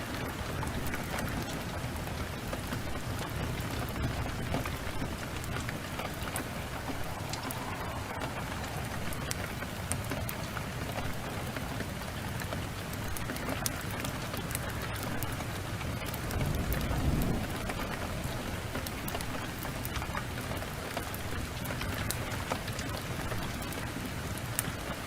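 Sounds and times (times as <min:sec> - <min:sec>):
heavy rain pouring: 0:00.0 - 0:25.0
sharp ticks and crackles: 0:00.0 - 0:25.0
low rumble: 0:04.0 - 0:11.3.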